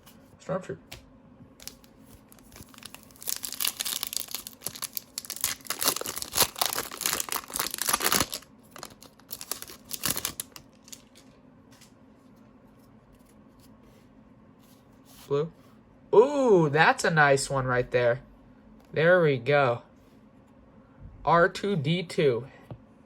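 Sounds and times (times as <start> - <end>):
wrapper tearing and crinkling: 1.6 - 11.3.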